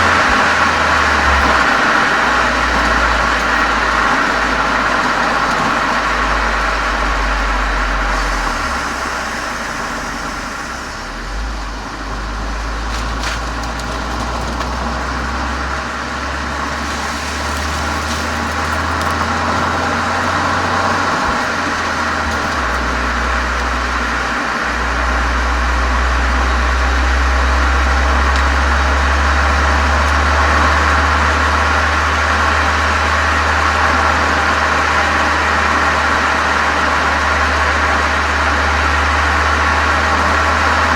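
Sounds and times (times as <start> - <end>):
car exhaust deep drone: 0.0 - 40.9.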